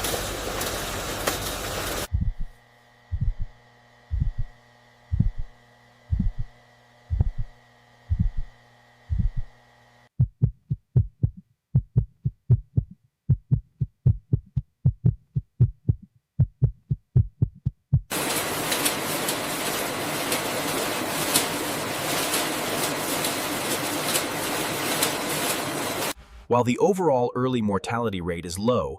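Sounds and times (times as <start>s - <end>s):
steady electronic hum: 2.0s - 12.6s
heartbeat thumps: 2.1s - 18.1s.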